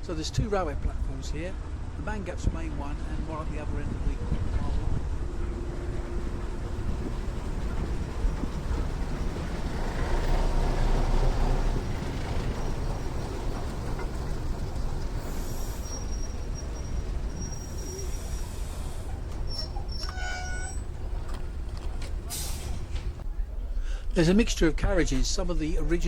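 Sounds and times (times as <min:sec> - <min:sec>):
train rumbling along track: 0:00.0 - 0:26.0
high wheel squeal: 0:05.6 - 0:23.2.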